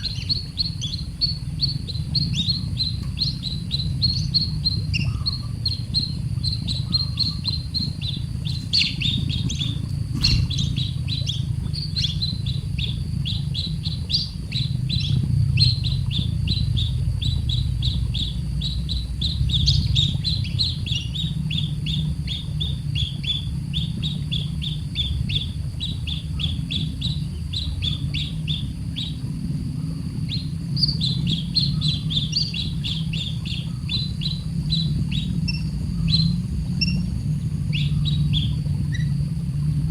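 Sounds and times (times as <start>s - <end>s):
baby bird begging chirps: 0.0s - 25.5s
steady low rumble: 0.0s - 39.9s.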